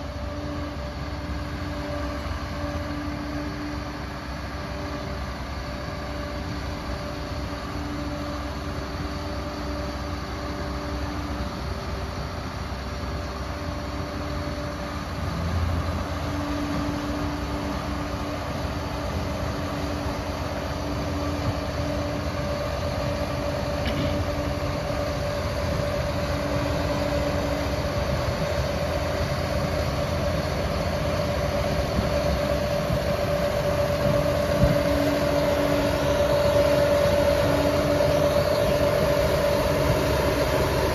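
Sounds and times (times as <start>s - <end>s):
diesel engine running: 0.0s - 40.9s
steady whine: 0.0s - 40.9s
clatter of bulldozer tracks: 21.2s - 25.1s, 31.7s - 40.9s.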